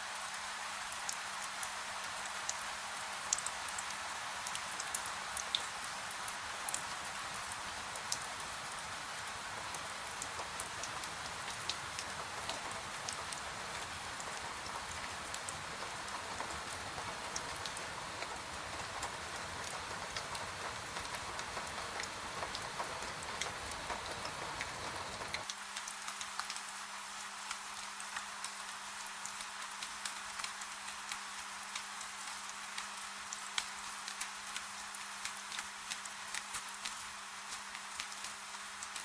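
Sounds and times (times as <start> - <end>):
gentle rain falling: 0.0 - 39.0
raindrops ticking: 1.0 - 26.7.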